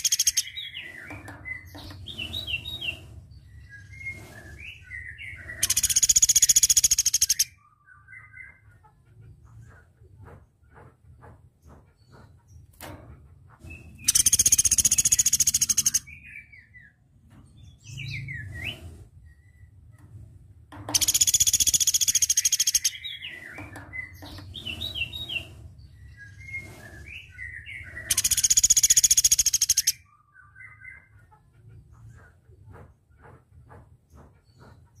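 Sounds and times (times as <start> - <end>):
bird chirps: 0.0 - 8.9, 13.8 - 17.0, 20.9 - 31.4
bird high-pitched trills: 5.4 - 7.6, 14.0 - 16.0, 21.0 - 23.4, 27.1 - 31.0.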